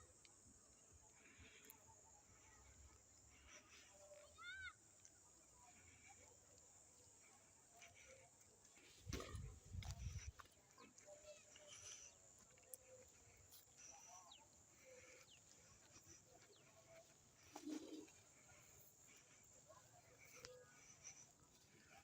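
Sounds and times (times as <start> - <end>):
bird cooing: 17.5 - 18.2.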